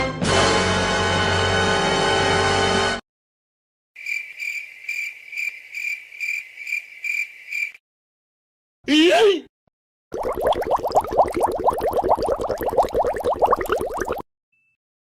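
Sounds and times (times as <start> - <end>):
music: 0.0 - 3.0
cricket chirping: 4.0 - 7.8.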